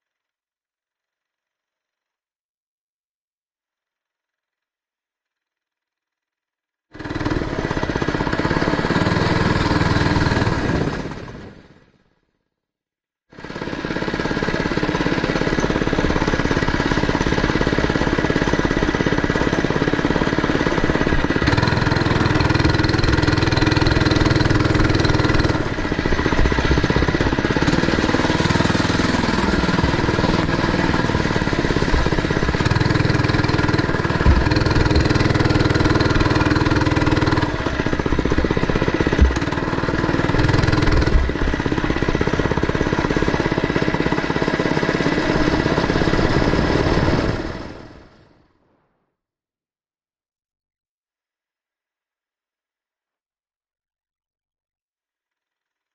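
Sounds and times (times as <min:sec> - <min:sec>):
mini bike engine revving: 0:07.0 - 0:11.8, 0:13.4 - 0:48.3.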